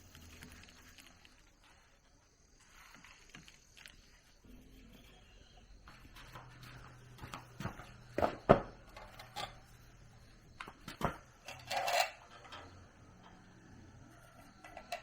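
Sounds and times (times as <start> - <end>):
small metallic clinks rattling: 6.3 - 15.0.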